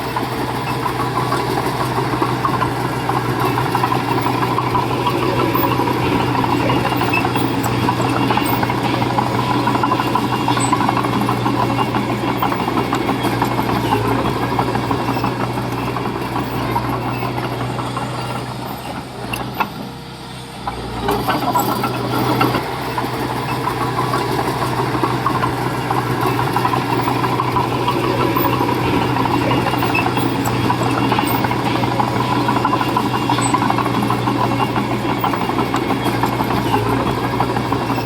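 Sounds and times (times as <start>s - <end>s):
diesel engine running under load: 0.0s - 38.0s.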